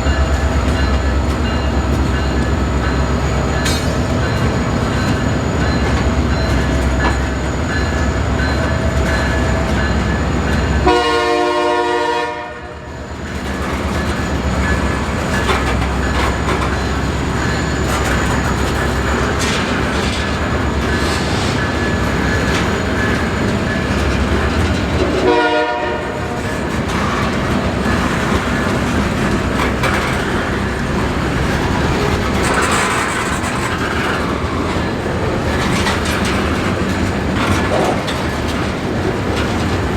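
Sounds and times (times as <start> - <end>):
freight train engine rumble: 0.0 - 39.9
train horn blasts: 10.8 - 12.9, 25.0 - 26.5
wheels clattering over rails: 26.3 - 39.9.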